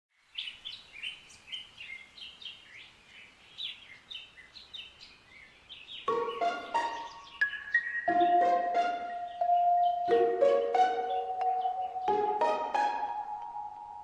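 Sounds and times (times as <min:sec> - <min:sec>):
birds chirping: 0:00.2 - 0:14.0
marimba melody: 0:06.1 - 0:14.0.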